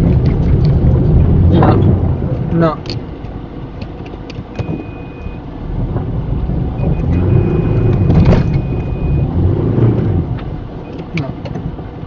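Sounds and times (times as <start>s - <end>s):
vehicle engine revving: 0.0s - 3.1s, 3.8s - 12.0s
high-pitched warning tone: 4.6s - 5.4s, 6.8s - 9.3s.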